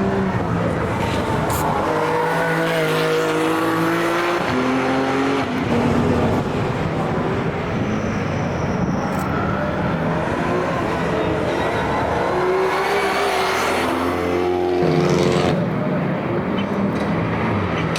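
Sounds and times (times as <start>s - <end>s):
racing cars passing at speed: 0.0s - 17.9s.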